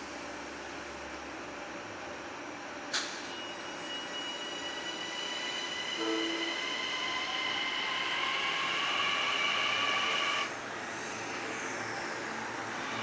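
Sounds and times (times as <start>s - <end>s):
electric train running past: 3.1s - 13.0s.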